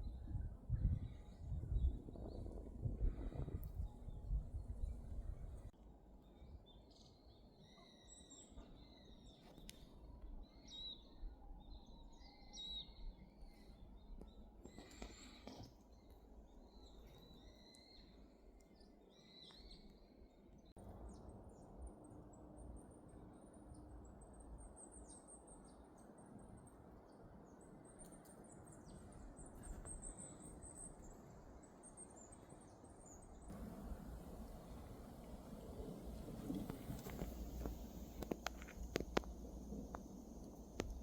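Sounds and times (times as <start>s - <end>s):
songbirds chirping: 0.0s - 41.0s
low steady background hiss: 33.0s - 41.0s.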